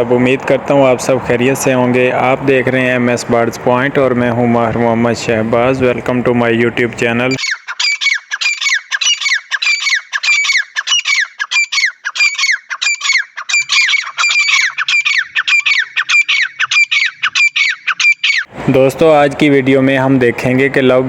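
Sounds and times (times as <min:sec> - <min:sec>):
lovebirds calling: 0:01.6 - 0:18.5.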